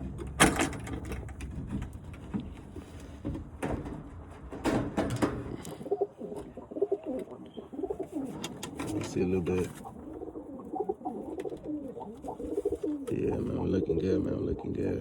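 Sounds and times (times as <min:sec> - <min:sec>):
rustling: 0:00.0 - 0:13.5
pigeons cooing: 0:05.1 - 0:15.0.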